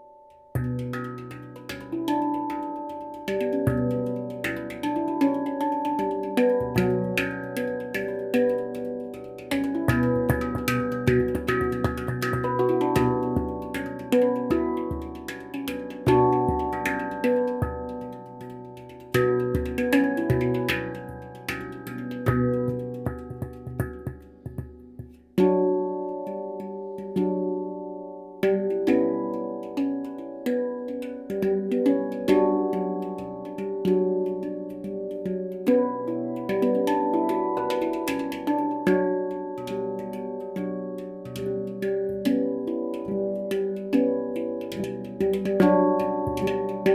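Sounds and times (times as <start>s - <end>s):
handpan melody: 0.0s - 46.9s.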